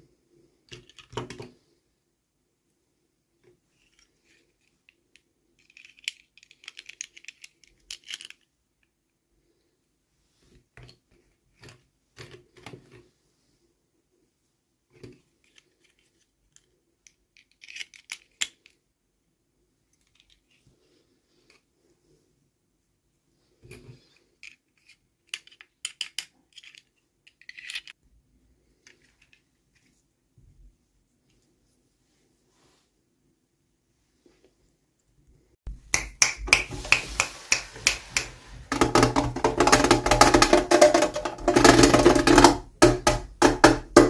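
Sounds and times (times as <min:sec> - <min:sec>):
small plastic parts clicking: 0:00.7 - 0:01.5, 0:03.8 - 0:09.0, 0:14.9 - 0:18.8, 0:23.7 - 0:28.0.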